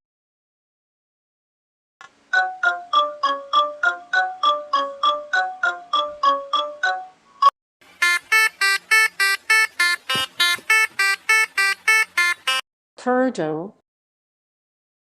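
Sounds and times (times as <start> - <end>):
buzzy electronic beeps: 8.0 - 12.6.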